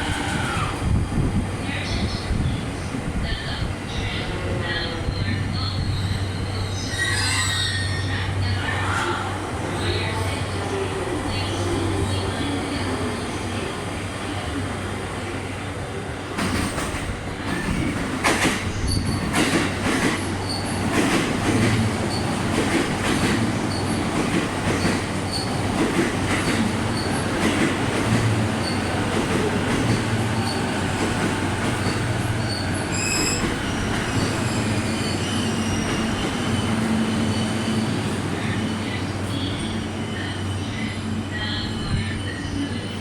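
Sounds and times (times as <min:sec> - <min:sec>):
high squeal: 0:05.2 - 0:09.1, 0:31.8 - 0:41.0
train running rumble: 0:16.2 - 0:43.0.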